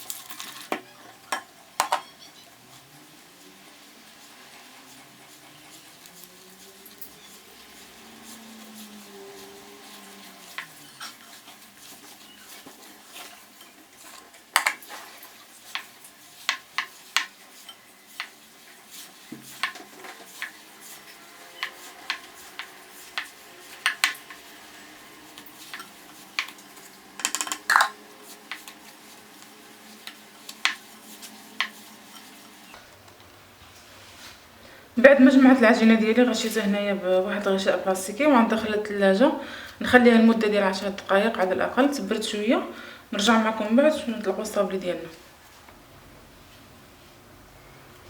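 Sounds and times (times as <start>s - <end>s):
utensil scraping mixing bowl: 0.0s - 34.4s.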